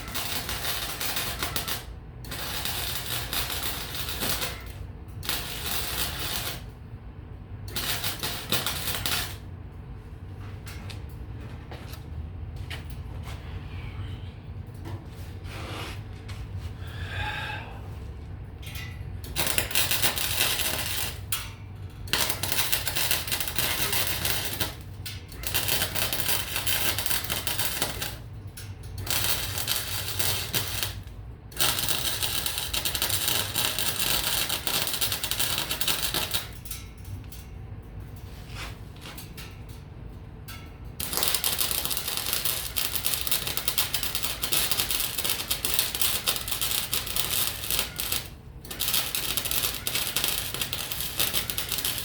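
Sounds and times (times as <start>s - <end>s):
arc welding crackling sizzle: 0.0s - 6.9s, 7.6s - 9.5s, 18.6s - 39.8s, 40.5s - 52.0s.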